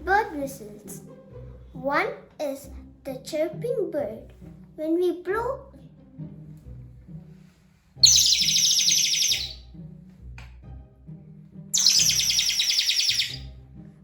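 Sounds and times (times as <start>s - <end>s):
toy bird whistle trilling: 8.0s - 9.6s, 11.8s - 13.5s.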